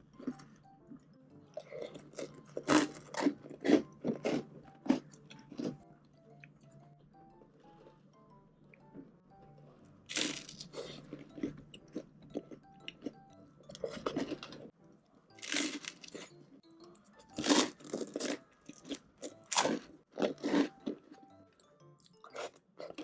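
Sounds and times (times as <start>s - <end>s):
crunching and chewing toast: 1.6s - 5.8s, 10.1s - 14.7s, 15.4s - 16.4s, 17.3s - 23.0s.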